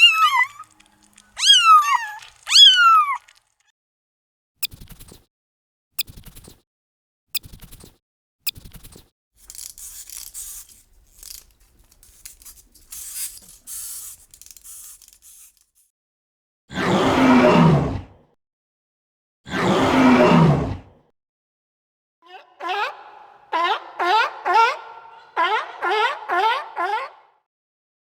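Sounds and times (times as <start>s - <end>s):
faint scratchy hissing: 9.5s - 15.6s.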